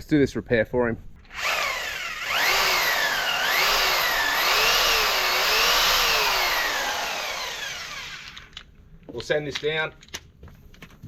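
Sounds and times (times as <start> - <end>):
power drill motor whine: 1.3 - 8.6.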